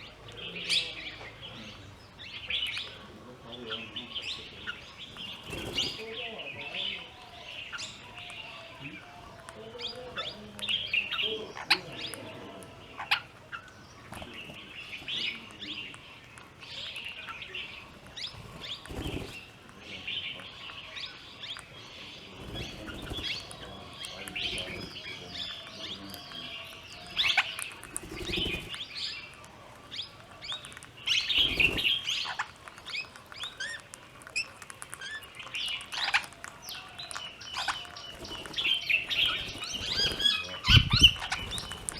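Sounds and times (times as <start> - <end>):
birds chirping: 0.0 - 41.9
wing flapping: 5.0 - 6.5, 17.8 - 20.1, 22.3 - 26.0, 27.0 - 41.9.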